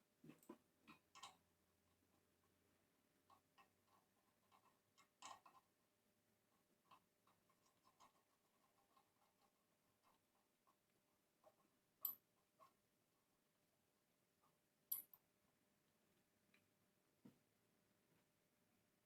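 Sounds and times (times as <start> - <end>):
faint clicks and taps: 16.5 - 17.5.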